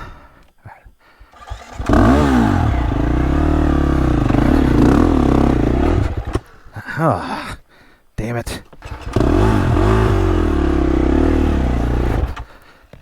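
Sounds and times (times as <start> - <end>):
dirt bike engine revving: 1.4 - 6.4, 8.8 - 12.5.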